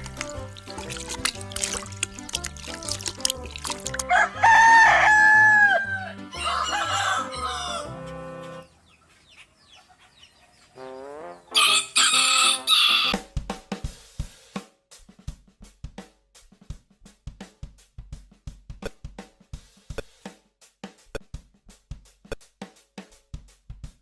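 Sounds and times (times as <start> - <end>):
music with repeating bass line: 0.0 - 5.0
rooster crowing: 4.0 - 8.1, 11.5 - 13.2.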